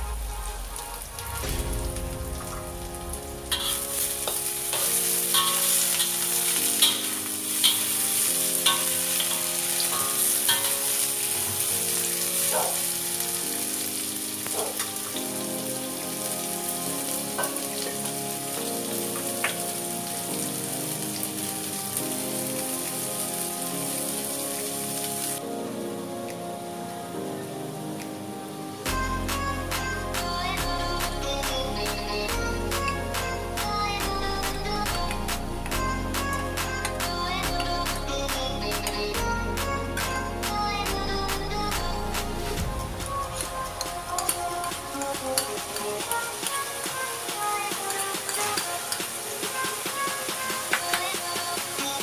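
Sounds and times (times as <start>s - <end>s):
vegetables sizzling in a wok: 0.0s - 25.4s, 43.0s - 52.0s
spatula clinking and scraping: 3.5s - 11.1s.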